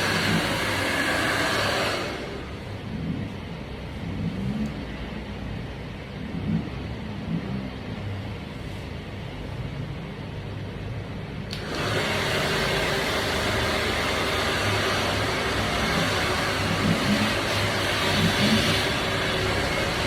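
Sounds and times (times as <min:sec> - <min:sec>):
hair dryer blowing: 0:00.0 - 0:02.7, 0:11.5 - 0:20.0
hair dryer switch click: 0:11.5 - 0:12.0.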